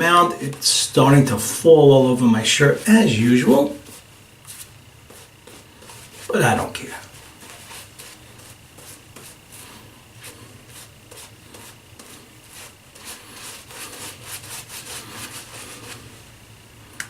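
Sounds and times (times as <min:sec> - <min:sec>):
shaving brush swishing lather: 0:01.4 - 0:16.1.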